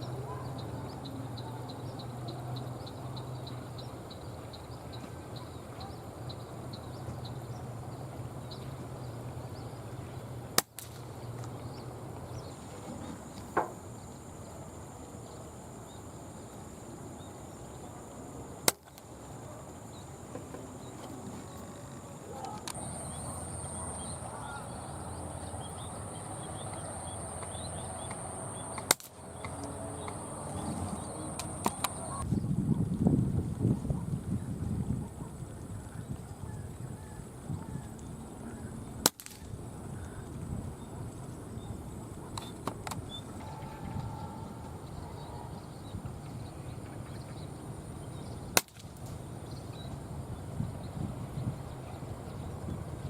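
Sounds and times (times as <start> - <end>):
steady high-pitched hum: 0.0 - 32.4
air rifle shots: 28.6 - 29.2, 39.0 - 39.5.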